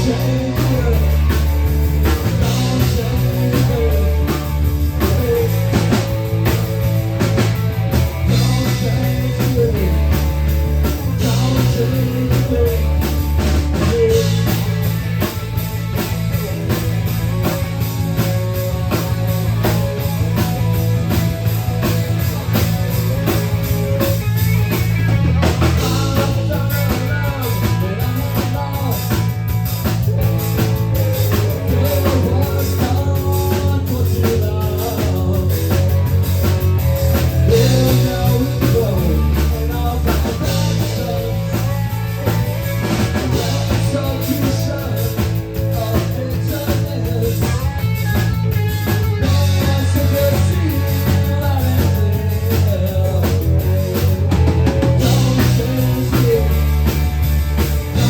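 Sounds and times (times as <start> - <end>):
person singing: 0.0 - 7.5, 8.1 - 21.1, 22.1 - 58.0
drum kit: 0.0 - 58.0
electric guitar: 0.0 - 58.0.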